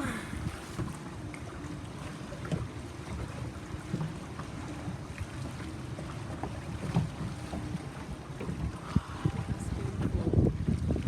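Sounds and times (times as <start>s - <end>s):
boat engine humming: 0.0s - 11.0s
water washing against hull: 0.0s - 11.0s
wind on microphone: 8.4s - 11.0s.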